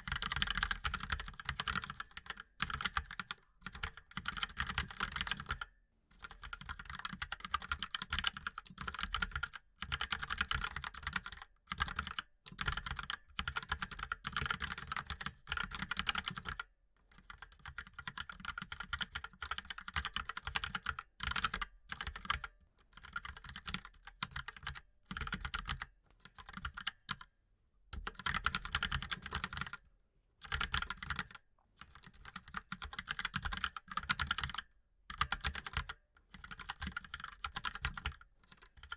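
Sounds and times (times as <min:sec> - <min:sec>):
mechanical keyboard typing: 0:00.0 - 0:16.6, 0:17.2 - 0:27.3, 0:27.9 - 0:29.8, 0:30.4 - 0:38.9.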